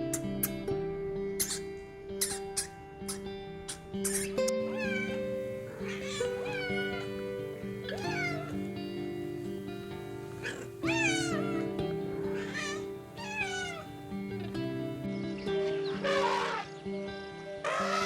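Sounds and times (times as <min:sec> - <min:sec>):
music with sustained notes: 0:00.0 - 0:18.0
cat meowing: 0:04.6 - 0:08.7, 0:10.2 - 0:14.0.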